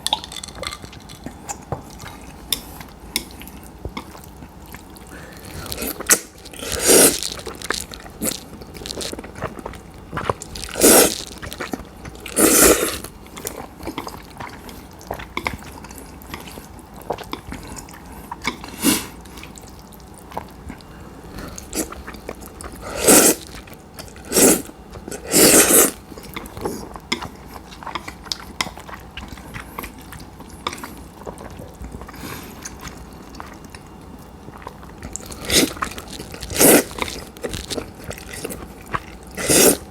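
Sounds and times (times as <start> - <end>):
wet chewing: 0.0 - 39.9
noodle slurping: 5.0 - 16.7, 21.4 - 33.6, 34.6 - 39.9.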